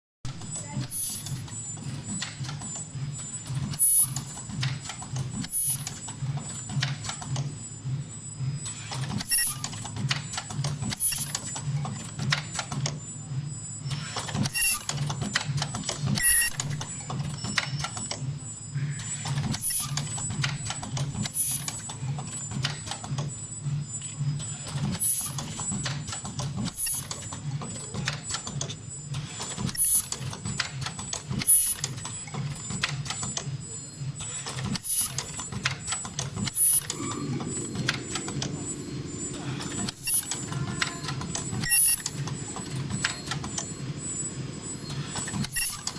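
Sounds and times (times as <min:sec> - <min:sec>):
sharp mechanical clicks: 0:00.3 - 0:07.6, 0:24.0 - 0:45.9
pulsing machine hum: 0:33.6 - 0:45.9.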